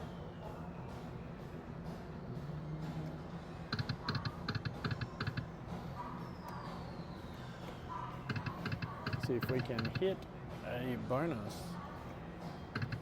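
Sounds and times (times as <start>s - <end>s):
electronic reel clicking: 8.3s - 10.0s, 12.8s - 13.0s.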